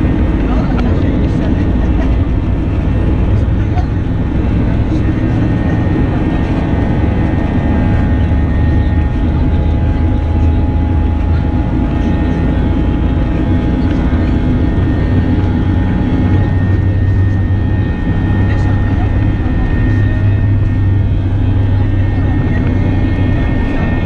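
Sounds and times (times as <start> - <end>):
aircraft cabin drone: 0.0 - 24.0.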